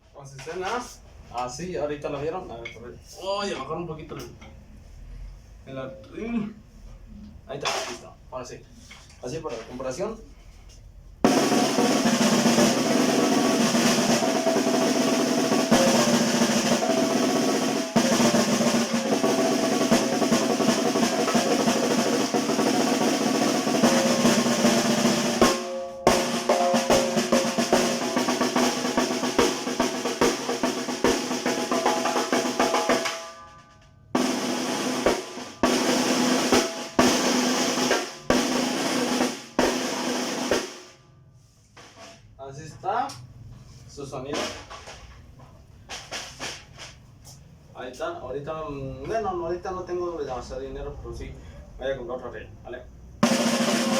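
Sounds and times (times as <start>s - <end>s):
snare drum rolls: 11.3s - 33.4s, 34.2s - 41.0s, 45.9s - 47.0s, 53.2s - 53.9s.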